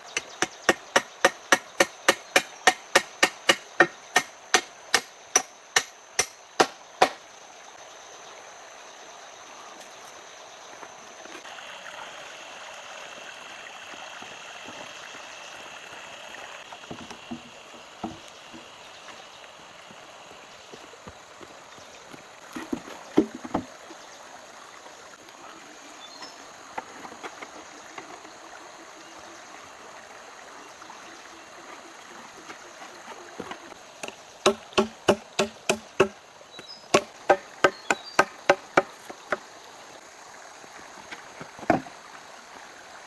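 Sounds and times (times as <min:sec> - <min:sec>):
background hiss: 0:00.0 - 0:43.0
sharp chopping strikes: 0:00.4 - 0:07.2, 0:34.0 - 0:36.2, 0:37.0 - 0:38.6.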